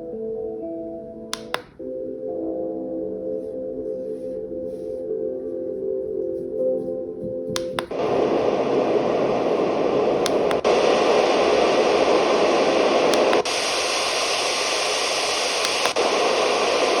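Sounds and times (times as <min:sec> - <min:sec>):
switch click: 0:01.3 - 0:01.8, 0:07.6 - 0:08.0, 0:10.2 - 0:10.7
white noise machine hiss: 0:07.9 - 0:17.0.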